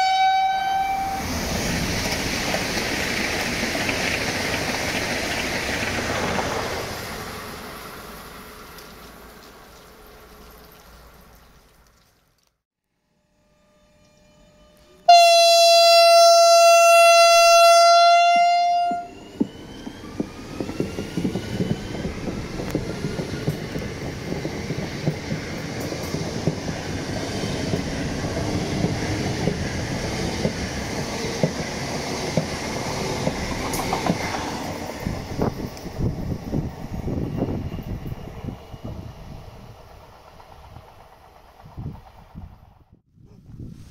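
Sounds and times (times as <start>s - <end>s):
train horn: 0.0s - 1.2s, 13.0s - 19.2s
train wheels rumbling past: 0.6s - 11.4s, 16.1s - 43.0s.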